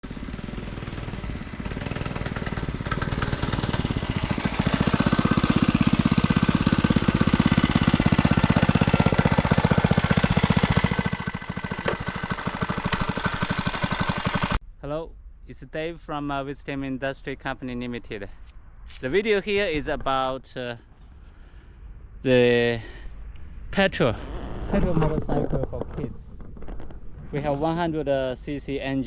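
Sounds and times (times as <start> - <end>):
small engine puttering: 0.0 - 14.6.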